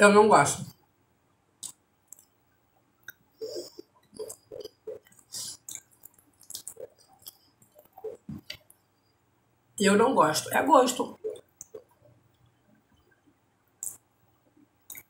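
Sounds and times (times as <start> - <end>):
person chewing with lip smacks: 4.2 - 8.7
mouth clicks: 13.8 - 14.0.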